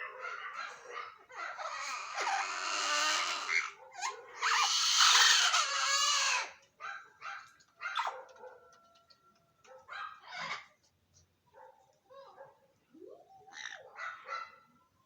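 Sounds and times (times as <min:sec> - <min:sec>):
parrots squawking and calling: 0:00.0 - 0:06.6, 0:10.2 - 0:10.8, 0:13.5 - 0:14.5
harsh parrot screech: 0:01.6 - 0:06.5.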